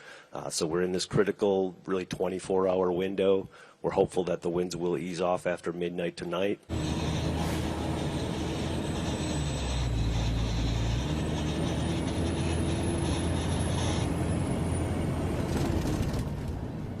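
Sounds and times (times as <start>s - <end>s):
engine running with high whine: 6.7s - 17.0s.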